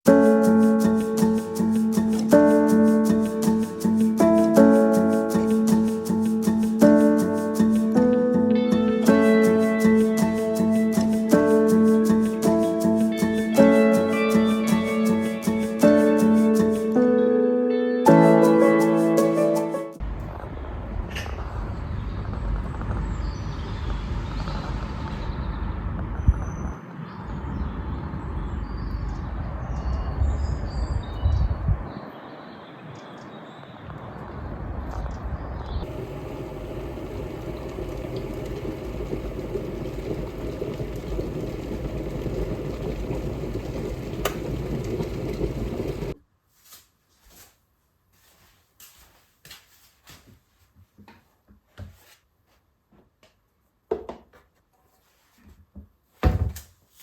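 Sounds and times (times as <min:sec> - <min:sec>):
moving vehicle rumbling: 0:20.0 - 0:32.1, 0:33.8 - 0:46.2.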